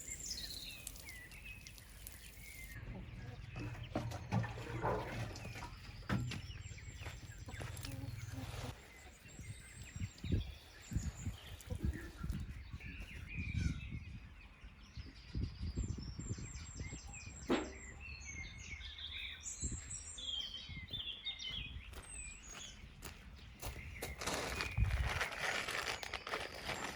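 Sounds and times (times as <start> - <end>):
small birds chirping: 0.0 - 26.9
low thuds and rustling: 2.8 - 8.3.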